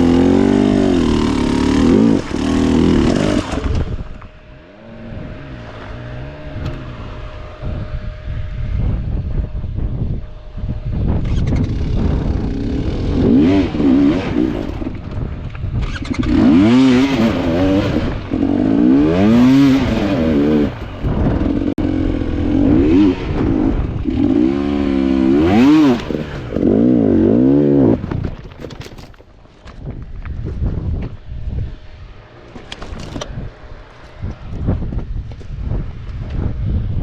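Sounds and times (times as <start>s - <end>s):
dirt bike engine revving: 0.0s - 28.2s.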